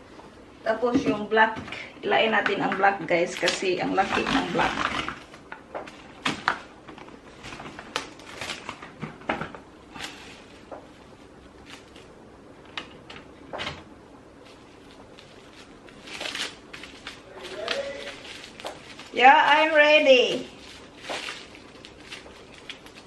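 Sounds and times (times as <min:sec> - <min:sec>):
plastic wrap crinkling: 0:03.3 - 0:12.2, 0:14.4 - 0:23.0.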